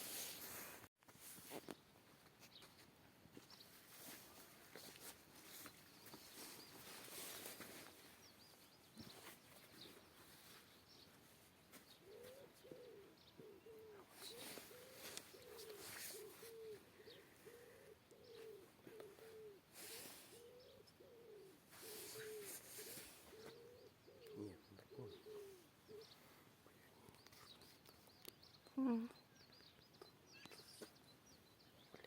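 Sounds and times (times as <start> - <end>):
small birds chirping: 1.2 - 32.0
low bird calls: 5.4 - 32.0.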